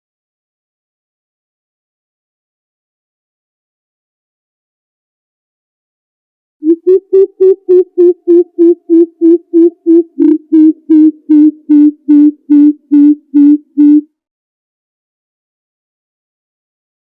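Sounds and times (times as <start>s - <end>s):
bird deep hoots: 6.6s - 14.0s.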